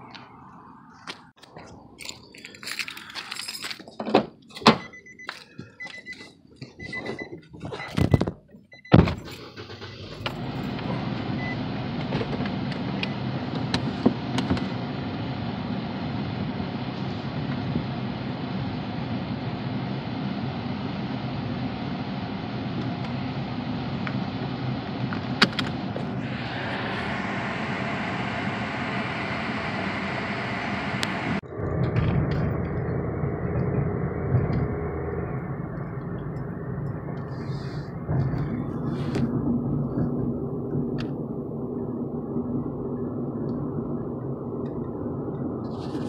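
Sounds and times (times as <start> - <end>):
car engine running: 7.6 - 46.0.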